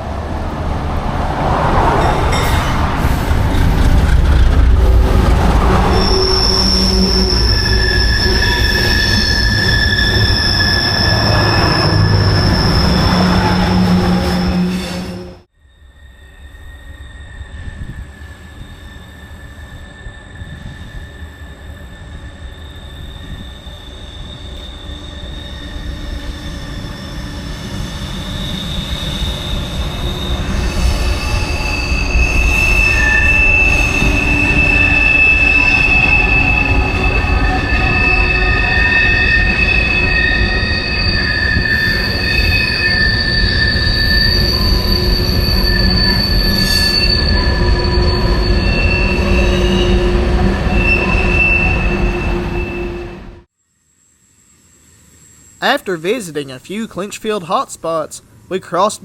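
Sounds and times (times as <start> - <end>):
freight train rumbling: 0.0 - 15.5
train wheels squealing on rails: 1.8 - 55.6.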